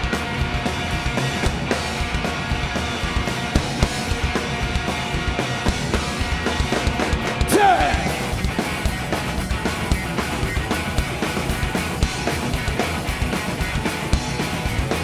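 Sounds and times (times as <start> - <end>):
drum kit pounding: 0.0 - 15.0
rock band playing: 0.0 - 15.0.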